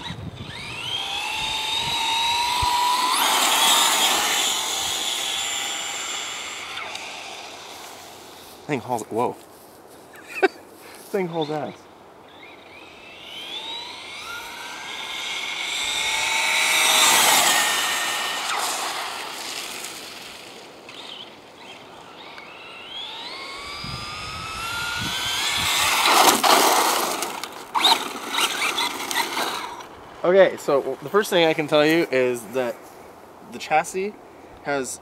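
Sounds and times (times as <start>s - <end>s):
electric motor whining: 0.0s - 8.6s, 11.2s - 30.0s.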